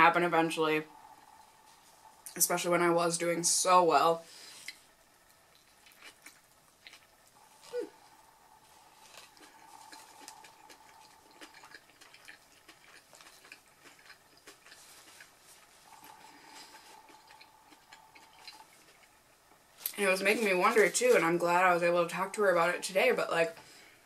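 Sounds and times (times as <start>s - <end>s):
faint steady hum: 0.0s - 24.0s
person chewing food: 4.4s - 20.0s.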